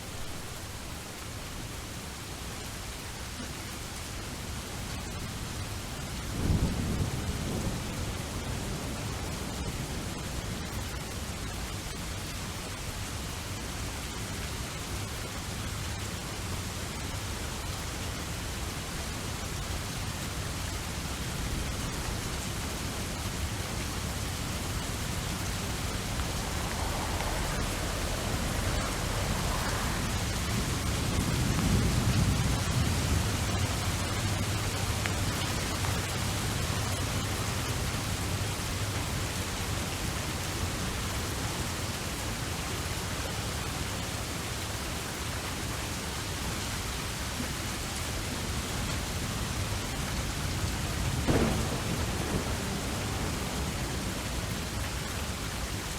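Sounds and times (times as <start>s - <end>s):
heavy rain: 0.0s - 55.9s
low thunder rolling: 21.4s - 37.6s, 50.6s - 55.9s.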